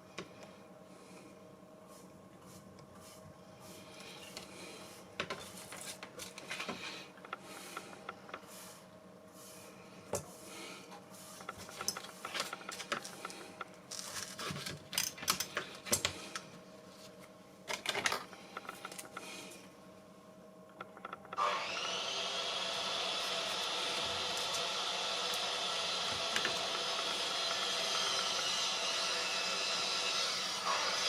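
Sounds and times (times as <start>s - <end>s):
steady machine noise: 11.4s - 14.1s, 20.7s - 31.0s.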